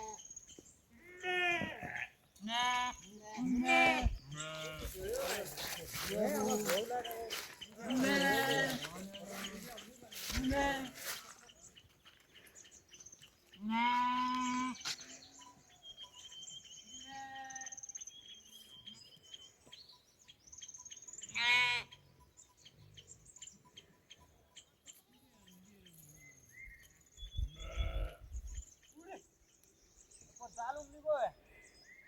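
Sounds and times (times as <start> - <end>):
small birds chirping: 0.0 - 32.0
livestock bleating: 1.0 - 5.2, 7.8 - 11.2, 13.6 - 14.8, 16.9 - 17.8, 21.3 - 22.0, 27.5 - 28.4.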